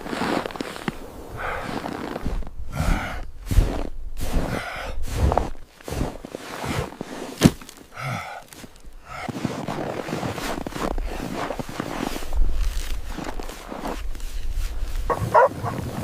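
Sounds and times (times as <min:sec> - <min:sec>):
person gasping for breath: 0:02.7 - 0:03.3, 0:04.4 - 0:05.2, 0:07.9 - 0:09.4
footsteps: 0:08.5 - 0:16.0.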